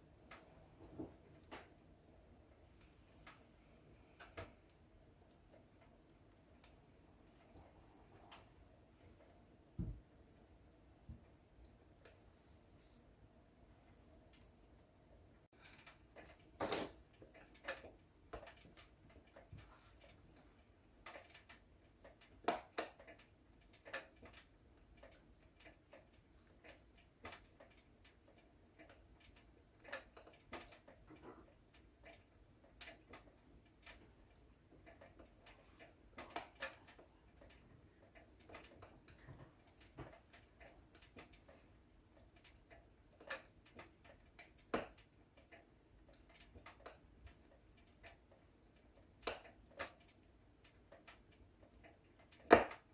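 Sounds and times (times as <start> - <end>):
wood fire crackling: 0.0 - 52.9
fire snaps and pops: 21.0 - 37.6, 42.2 - 52.9.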